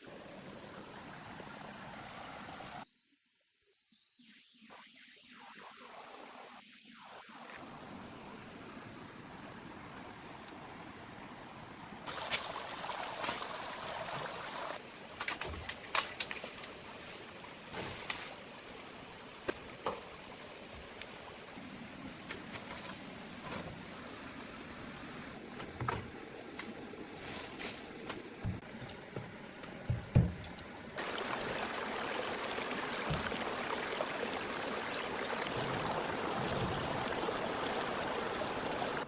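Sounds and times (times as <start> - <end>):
flowing water rushing: 0.0 - 2.8, 5.3 - 39.0
rustling or splashing: 12.0 - 24.0, 25.5 - 29.3
sharp knocks and clanks: 28.4 - 30.6.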